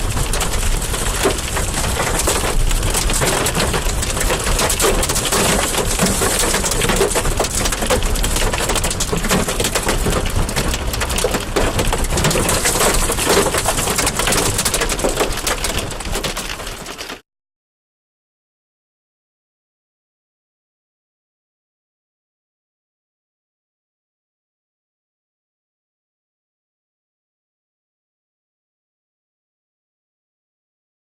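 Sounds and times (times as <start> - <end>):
hail and rain pelting surfaces: 0.0 - 17.2.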